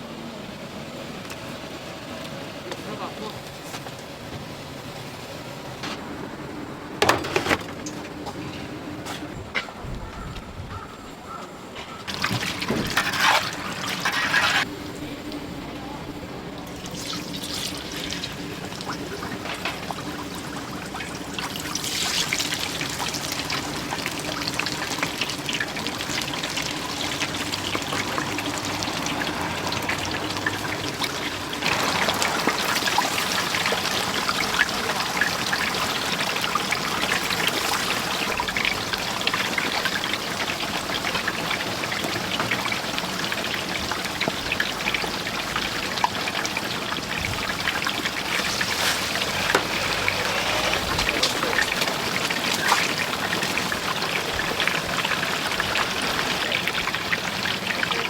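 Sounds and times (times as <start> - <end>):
chicken deep-frying in oil: 12.1 - 58.0.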